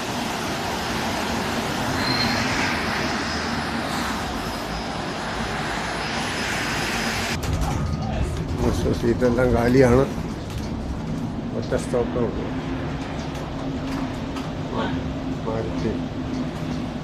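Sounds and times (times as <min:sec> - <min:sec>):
bus drive and tyres rushing: 0:00.0 - 0:17.0.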